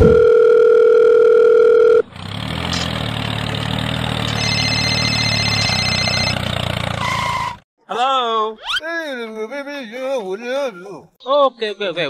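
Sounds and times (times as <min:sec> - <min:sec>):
phone buzzing vibration: 0:00.0 - 0:02.0, 0:04.3 - 0:06.4
telephone dial tone: 0:00.0 - 0:02.0, 0:04.3 - 0:06.4.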